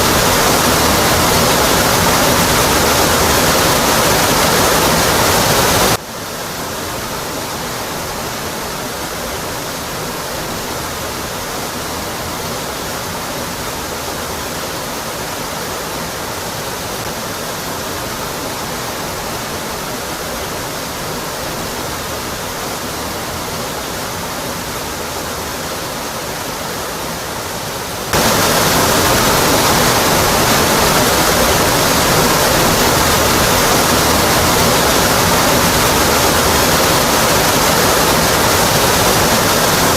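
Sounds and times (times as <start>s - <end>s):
waterfall crashing onto rock: 0.0s - 6.0s, 28.1s - 39.9s.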